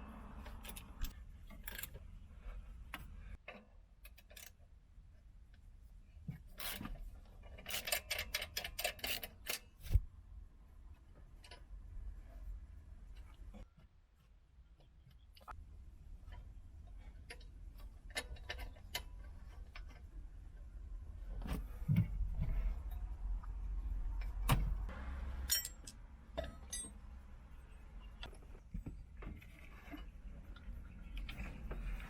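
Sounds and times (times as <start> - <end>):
metal tools clinking on car parts: 25.4 - 27.0.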